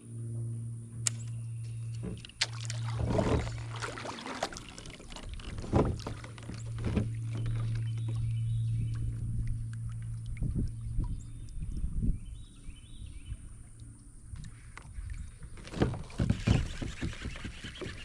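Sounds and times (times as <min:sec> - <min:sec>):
steady low hum: 0:00.0 - 0:18.0
paddle splashing in water: 0:02.0 - 0:11.2, 0:14.4 - 0:18.0.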